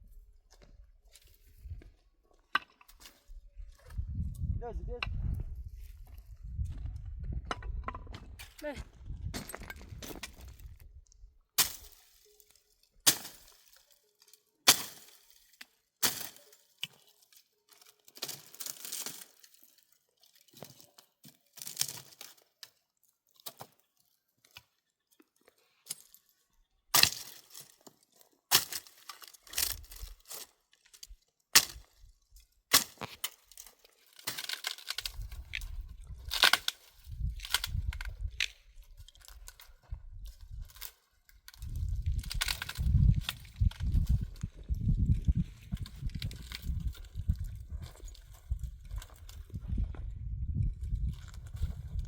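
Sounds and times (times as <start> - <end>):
dry branches snapping: 11.6 - 12.2, 13.0 - 20.8, 21.5 - 22.7, 26.9 - 32.1, 32.7 - 49.4
twigs rustling: 11.7 - 49.5.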